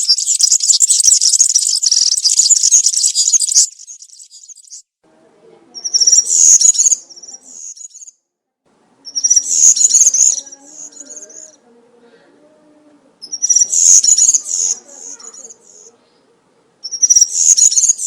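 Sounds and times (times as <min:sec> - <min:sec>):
bird jingling song: 0:00.0 - 0:04.8, 0:05.8 - 0:08.1, 0:09.1 - 0:11.6, 0:13.2 - 0:15.9, 0:16.8 - 0:18.0.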